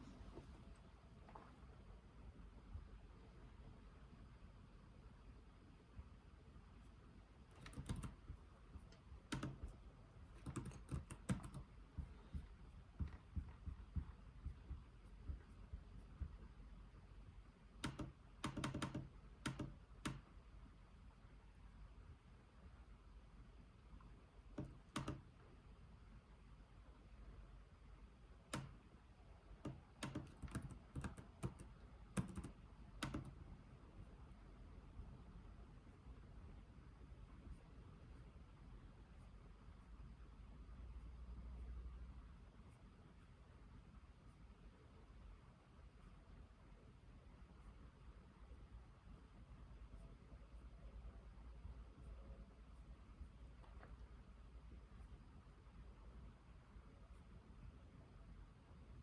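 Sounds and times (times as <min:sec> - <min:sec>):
soft typing on keyboard: 0:06.8 - 0:16.9, 0:17.6 - 0:20.5, 0:24.0 - 0:25.5, 0:28.4 - 0:33.6, 0:49.6 - 0:55.1.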